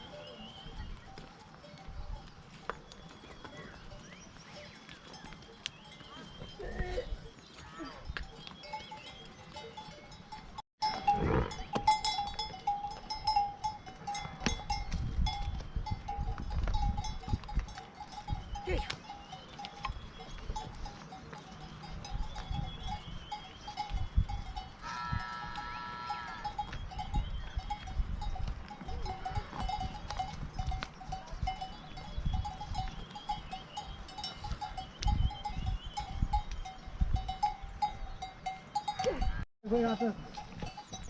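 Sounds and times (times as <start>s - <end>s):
animal bells clinking: 0.0s - 41.0s
sheep bleat: 24.8s - 26.6s.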